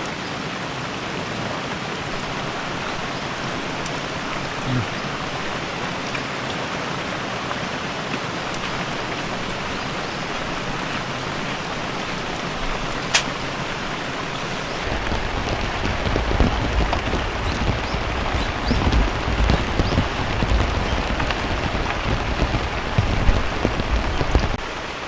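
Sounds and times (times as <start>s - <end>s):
heavy rain falling: 0.0s - 25.0s
low uneven rumble: 8.4s - 24.6s.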